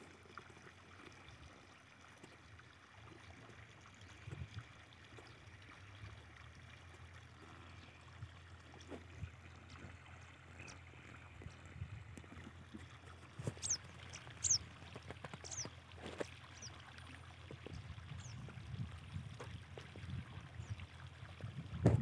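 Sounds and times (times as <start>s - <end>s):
bird's high downward chirps: 13.6s - 14.6s, 15.4s - 15.7s.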